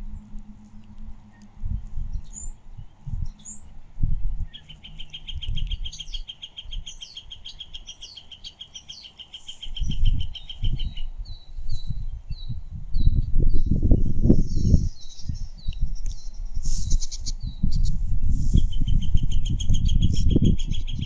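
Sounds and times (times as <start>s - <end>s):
birds chirping: 0.0s - 21.0s
bird trilling: 4.4s - 11.4s.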